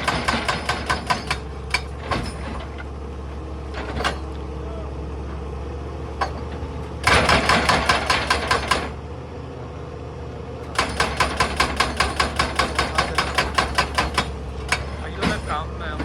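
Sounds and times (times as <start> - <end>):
hydraulic breaker hammering rock: 0.0 - 2.7, 6.2 - 9.0, 10.7 - 16.0
diesel engine running: 0.0 - 16.0.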